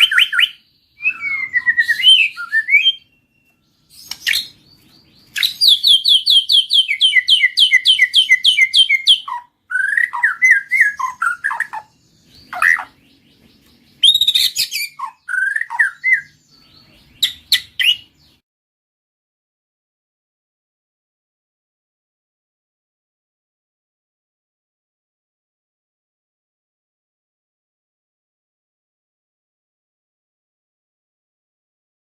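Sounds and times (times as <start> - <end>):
bird singing whistled notes: 0.0 - 18.4
bird chattering notes: 5.2 - 18.1.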